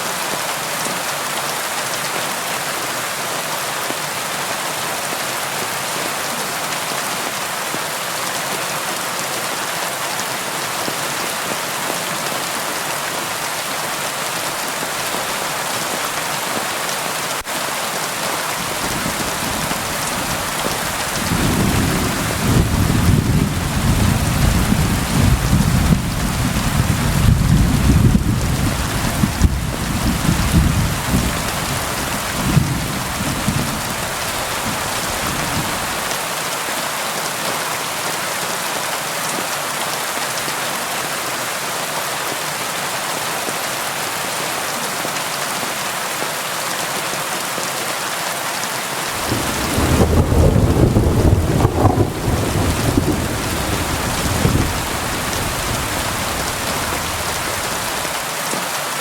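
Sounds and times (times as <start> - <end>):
steady rainfall: 0.0 - 59.0
thunder rumbling: 18.6 - 36.1, 49.2 - 58.1.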